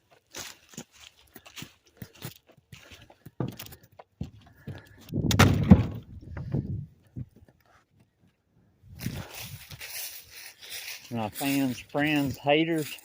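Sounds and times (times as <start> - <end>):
heavy wood clatter: 4.6 - 7.4
firewood knocking and thudding: 4.6 - 7.5.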